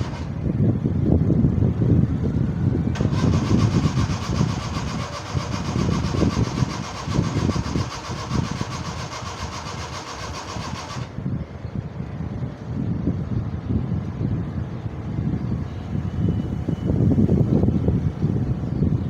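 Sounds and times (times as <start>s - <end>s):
engine chugging unevenly: 0.0s - 0.5s, 2.9s - 11.3s
starter motor whirring: 0.0s - 0.5s, 2.9s - 11.2s.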